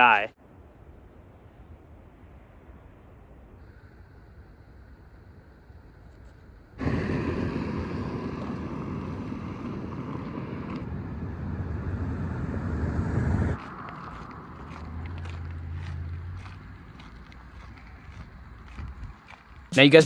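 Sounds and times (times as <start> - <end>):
wind on microphone: 6.8 - 14.8, 18.2 - 19.3
vehicle road noise: 6.8 - 20.0.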